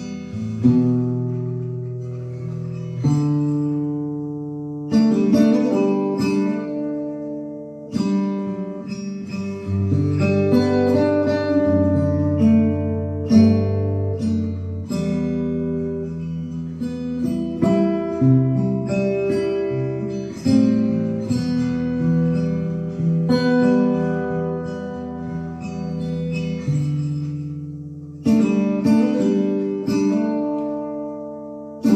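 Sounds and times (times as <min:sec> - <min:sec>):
fingerstyle acoustic guitar: 0:00.0 - 0:31.9.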